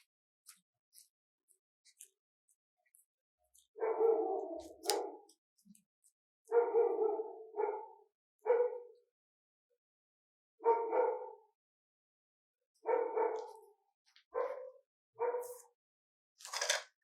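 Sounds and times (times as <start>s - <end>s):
dog barking: 3.8s - 5.3s, 6.4s - 9.1s, 10.6s - 11.6s, 12.8s - 15.8s.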